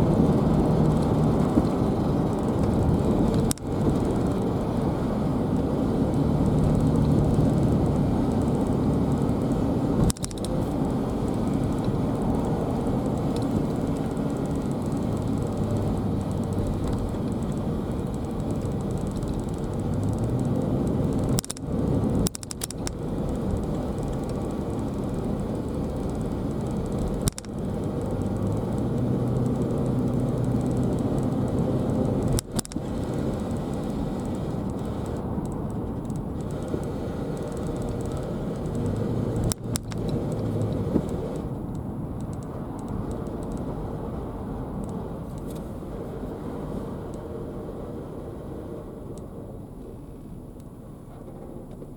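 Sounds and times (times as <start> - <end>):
car road and engine noise: 0.0 - 51.9.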